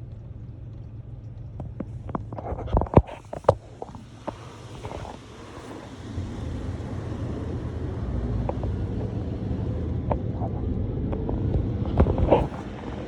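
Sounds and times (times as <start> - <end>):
car wash machinery rumbling: 0.0 - 13.0.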